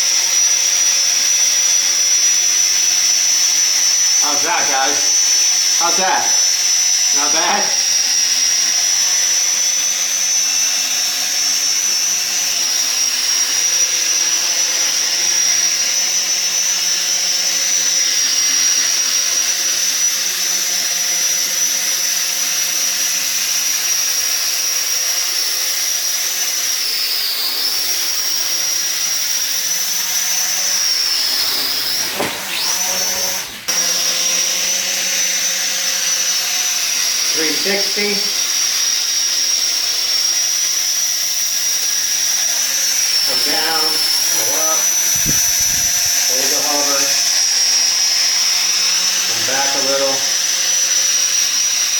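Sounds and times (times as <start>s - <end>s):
drone propellers whining: 27.3s - 38.4s.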